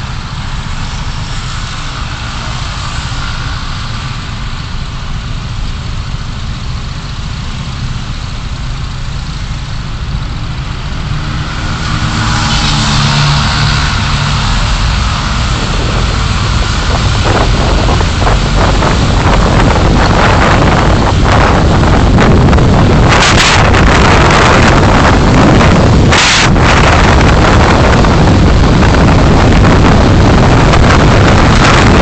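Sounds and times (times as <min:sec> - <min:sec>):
car engine running: 0:00.0 - 0:32.0
road noise: 0:00.0 - 0:32.0
wind on microphone: 0:09.9 - 0:32.0.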